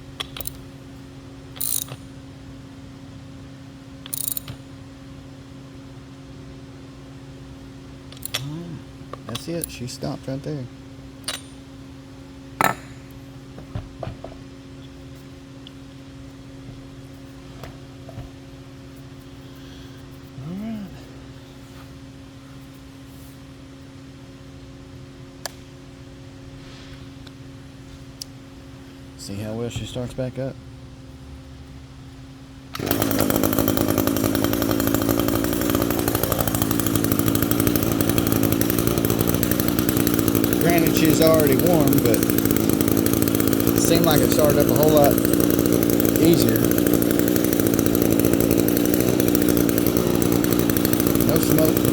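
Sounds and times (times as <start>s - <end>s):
string trimmer engine running: 1.6s - 1.9s, 32.7s - 51.9s.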